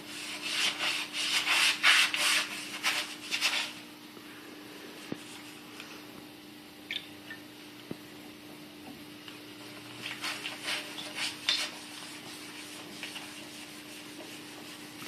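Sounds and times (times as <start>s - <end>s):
newspaper scrubbing glass: 0.0s - 3.8s, 10.0s - 15.0s
faint steady hum: 0.0s - 15.0s.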